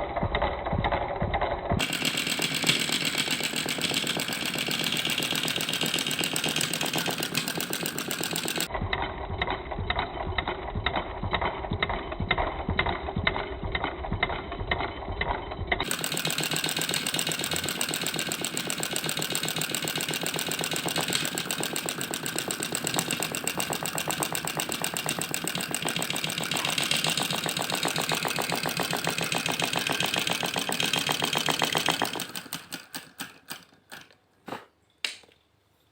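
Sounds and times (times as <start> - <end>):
small engine clattering: 0.0 - 35.3.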